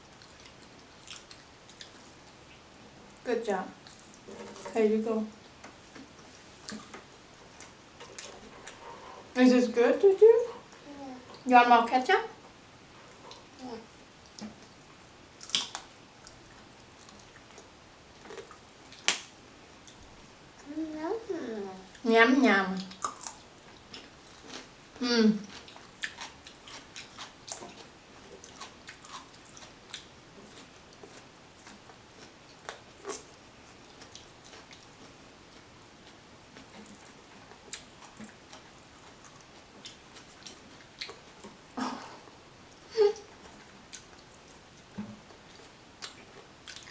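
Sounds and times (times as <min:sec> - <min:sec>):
chewing and wet mouth noises: 0:00.1 - 0:02.4, 0:15.4 - 0:19.2, 0:22.8 - 0:24.7, 0:25.4 - 0:41.6, 0:43.2 - 0:46.9.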